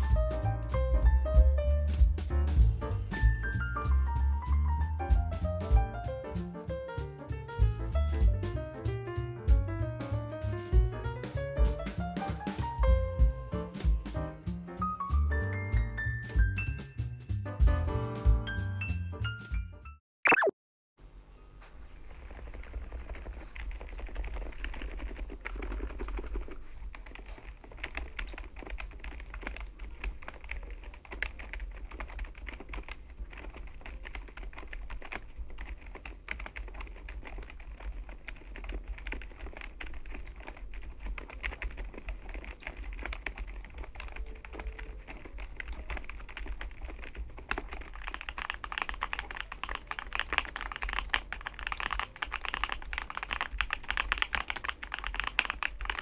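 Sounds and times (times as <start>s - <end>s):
mechanical keyboard typing: 22.1s - 56.0s.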